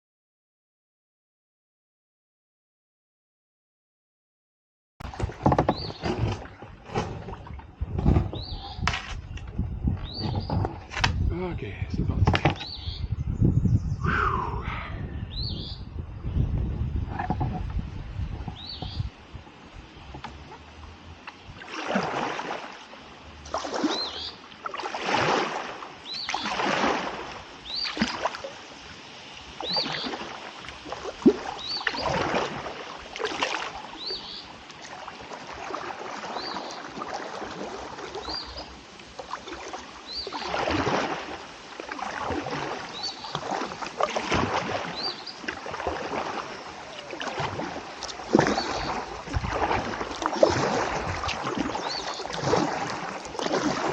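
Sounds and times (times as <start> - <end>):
kayak paddle splashing: 5.0 - 11.3, 17.1 - 53.9.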